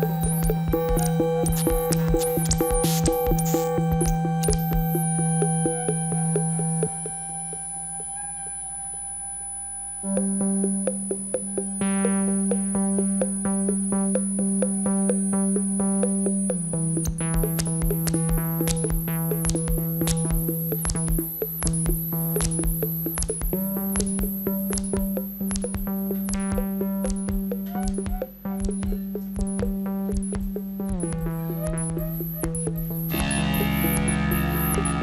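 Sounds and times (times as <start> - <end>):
regular clicking pulse: 0.0 - 7.8, 10.1 - 35.0
synthesizer drone: 0.0 - 35.0.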